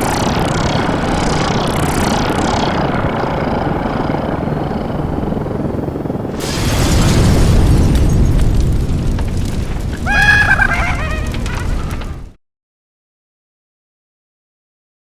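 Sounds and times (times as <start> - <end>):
cartoon low rumble: 10.0 - 12.3.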